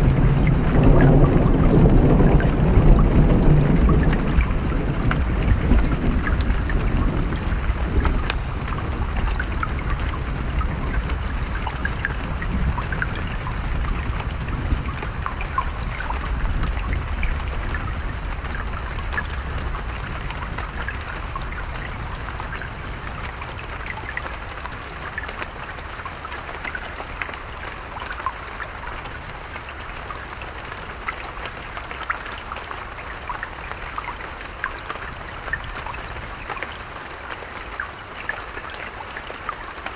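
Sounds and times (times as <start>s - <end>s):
low thunder rumble: 0.0s - 23.5s
steady rain falling: 0.0s - 39.9s.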